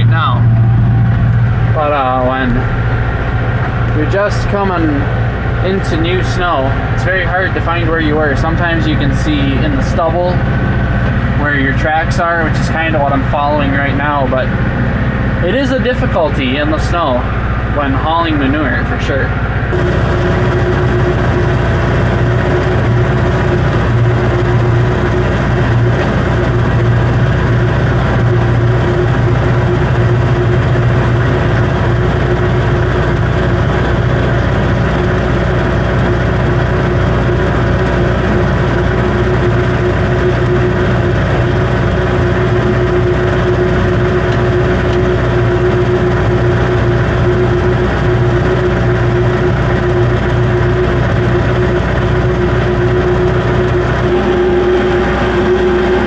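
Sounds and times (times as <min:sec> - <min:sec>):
tractor engine humming: 0:00.0 - 0:56.0.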